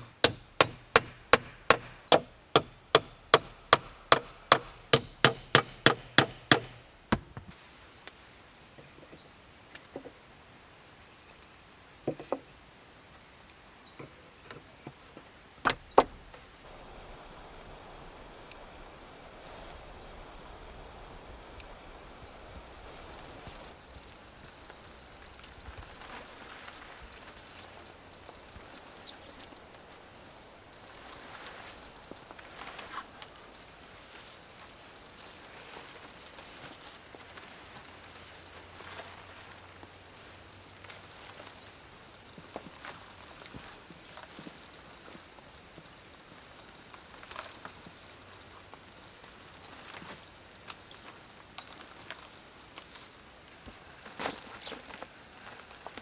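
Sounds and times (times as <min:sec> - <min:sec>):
small birds chirping: 0:15.6 - 0:36.2
rustling: 0:16.0 - 0:39.5.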